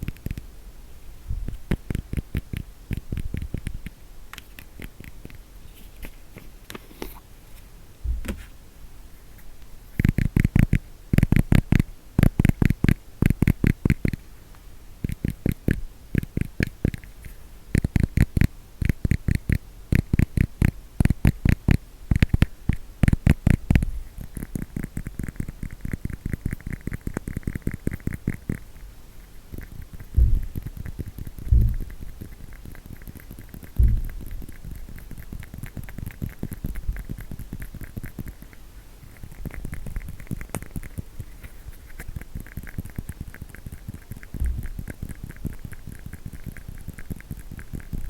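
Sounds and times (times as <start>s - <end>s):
fast tapping on plastic case: 29.6s - 34.6s.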